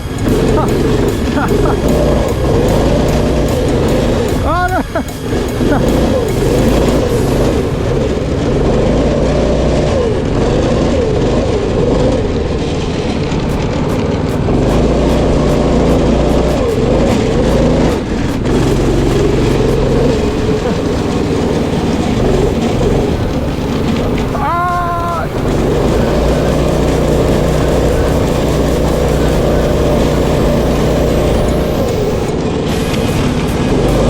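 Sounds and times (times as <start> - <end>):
go-kart engine revving: 0.0 - 34.0.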